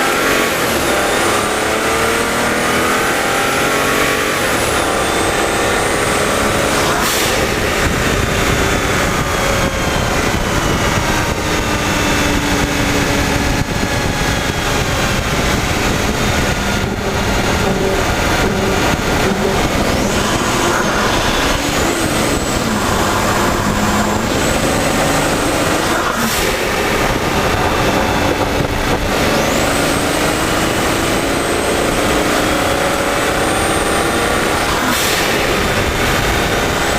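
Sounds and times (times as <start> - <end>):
car engine running loud: 0.0 - 36.9.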